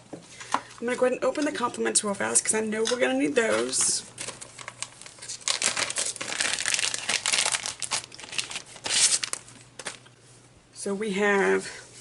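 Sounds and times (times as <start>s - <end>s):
plastic packaging crinkling: 3.4s - 10.2s.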